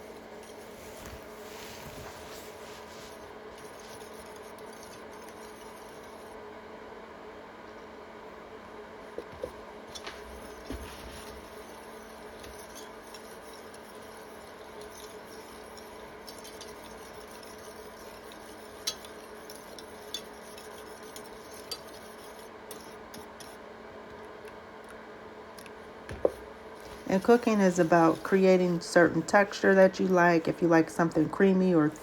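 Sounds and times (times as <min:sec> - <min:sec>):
faint steady hum: 0:00.0 - 0:32.0
utensil stirring sauce in a pan: 0:02.5 - 0:06.5, 0:09.2 - 0:23.7.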